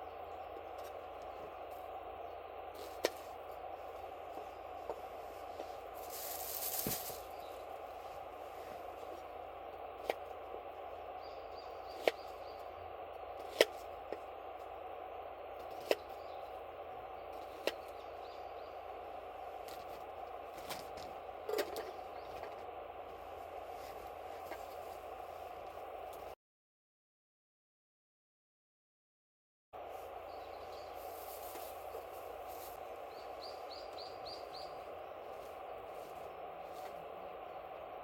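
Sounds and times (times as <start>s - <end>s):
campfire crackling: 0.2s - 11.2s
fire hiss: 5.0s - 9.3s.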